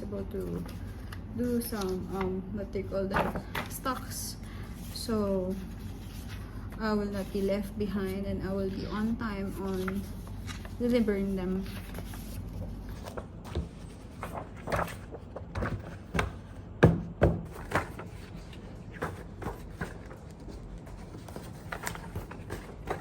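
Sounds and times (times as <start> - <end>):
paper sheets tapping and knocking: 11.7 - 23.0.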